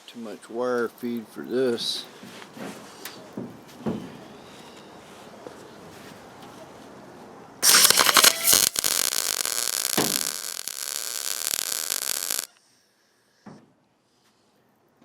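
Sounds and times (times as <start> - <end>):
welder arc crackling: 7.6 - 12.6.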